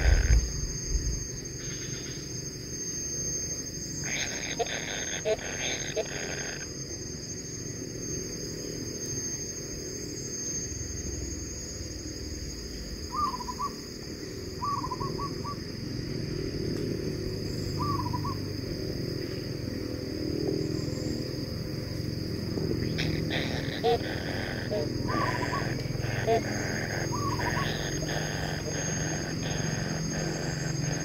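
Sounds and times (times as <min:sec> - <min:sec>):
nestlings begging calls: 0:00.0 - 0:00.9, 0:04.0 - 0:06.7, 0:22.8 - 0:31.0
low rumble: 0:00.0 - 0:01.4
high-pitched drone: 0:00.0 - 0:02.3, 0:22.9 - 0:31.0.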